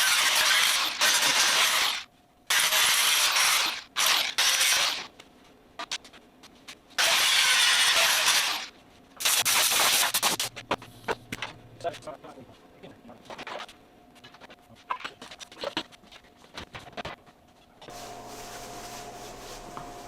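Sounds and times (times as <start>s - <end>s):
power grinder on steel: 0.0s - 5.1s, 7.0s - 8.7s.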